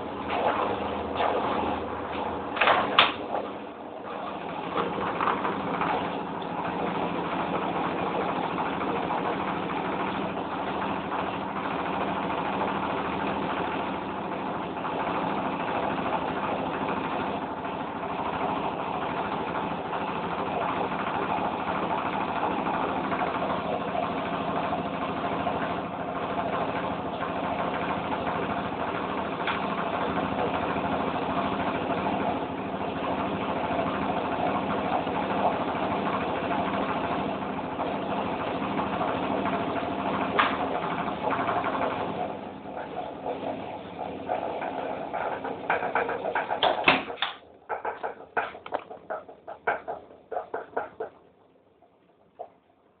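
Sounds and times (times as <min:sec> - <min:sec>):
washing machine spinning: 0:00.0 - 0:53.0
loud knock: 0:45.6 - 0:51.2.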